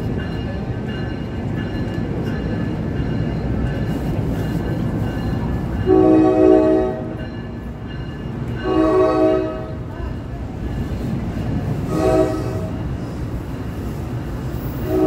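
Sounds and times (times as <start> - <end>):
train wheels rumbling on rails: 0.0 - 15.0
multi-tone train horn blasts: 5.8 - 7.2, 8.6 - 10.0, 11.8 - 13.0, 14.8 - 15.0.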